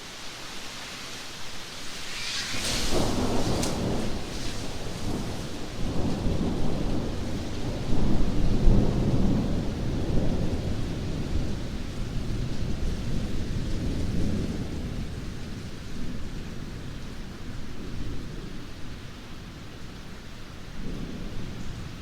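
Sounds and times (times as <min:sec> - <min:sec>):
heavy rain: 0:00.0 - 0:22.0
thunder rumbling: 0:01.8 - 0:16.2.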